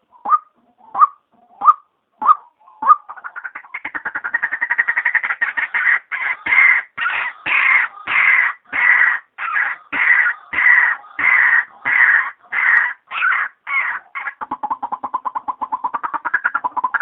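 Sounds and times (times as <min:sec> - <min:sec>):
bird harsh croaking: 0:00.0 - 0:17.0.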